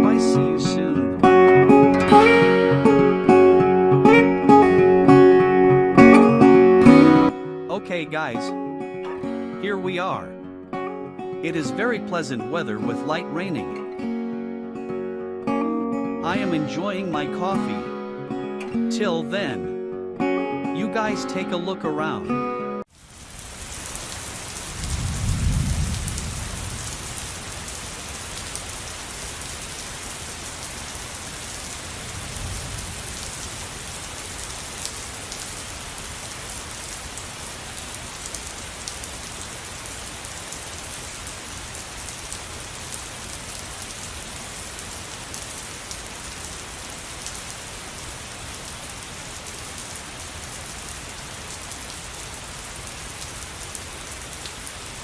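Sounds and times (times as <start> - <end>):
steady rain falling: 22.9 - 55.0
low rumble of thunder: 24.7 - 27.2.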